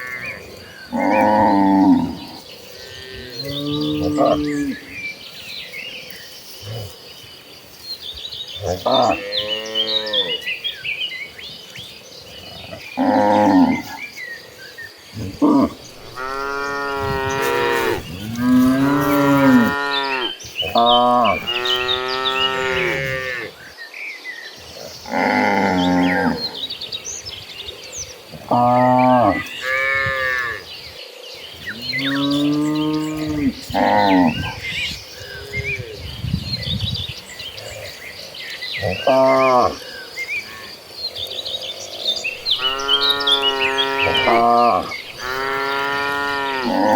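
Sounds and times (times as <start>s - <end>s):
small birds chirping: 0.0s - 46.9s
cattle mooing: 15.2s - 23.5s, 42.4s - 46.9s.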